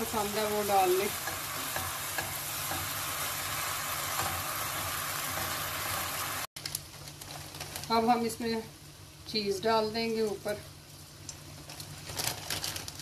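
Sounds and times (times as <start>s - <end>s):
food sizzling in a pan: 0.0s - 6.5s.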